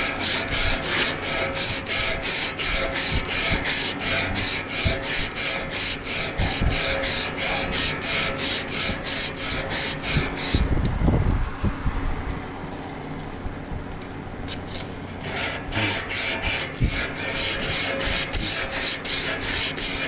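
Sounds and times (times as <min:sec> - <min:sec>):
rhythmic rasping strokes: 0:00.0 - 0:10.6, 0:14.6 - 0:20.0.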